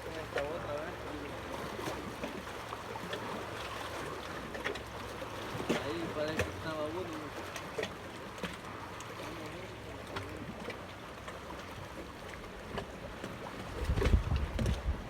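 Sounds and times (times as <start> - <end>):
water: 0.0 - 15.0
wind: 0.0 - 15.0.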